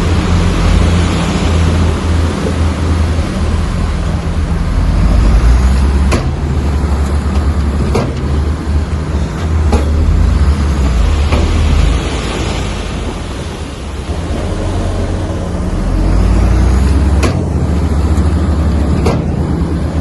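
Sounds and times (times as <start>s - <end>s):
bulldozer diesel engine running: 0.0s - 20.0s
sharp knocks: 6.0s - 6.5s, 7.8s - 8.4s, 9.6s - 10.2s, 10.8s - 12.1s, 17.1s - 17.6s, 18.9s - 19.5s.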